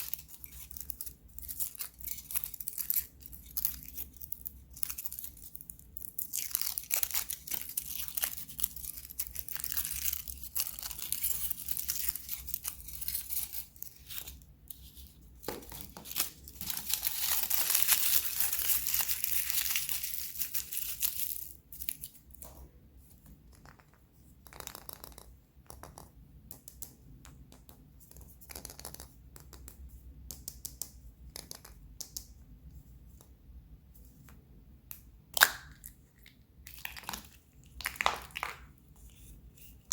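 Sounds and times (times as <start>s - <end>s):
wrapper crinkling and tearing: 0.0s - 14.4s, 15.7s - 22.2s.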